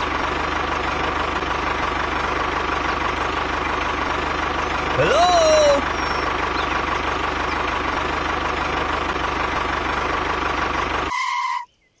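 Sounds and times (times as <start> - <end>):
tractor engine running: 0.0 - 11.6.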